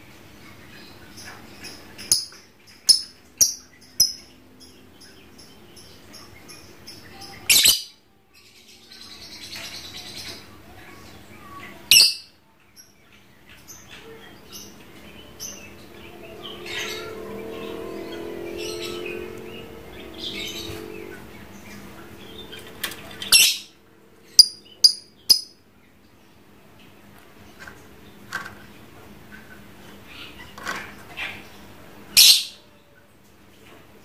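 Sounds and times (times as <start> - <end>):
lovebird chirping: 11.9 - 13.0, 13.6 - 25.6.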